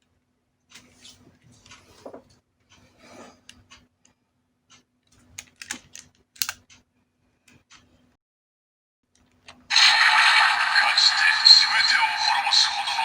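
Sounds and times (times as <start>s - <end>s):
sharp plastic clicks: 5.3s - 6.8s.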